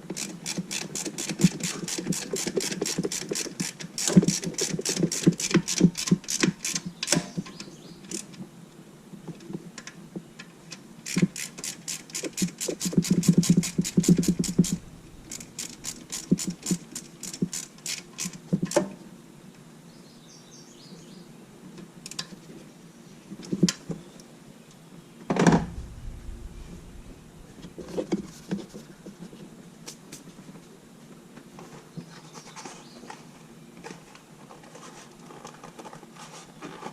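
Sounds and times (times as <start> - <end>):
ratchet wrench clicking: 11.1 - 18.4
dull thump: 25.4 - 27.9.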